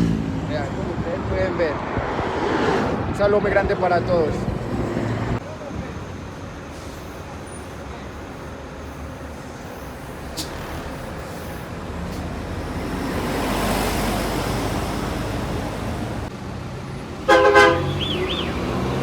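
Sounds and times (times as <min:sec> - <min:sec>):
highway traffic passing: 0:00.0 - 0:19.0
loud multi-tone vehicle horn: 0:17.3 - 0:19.0.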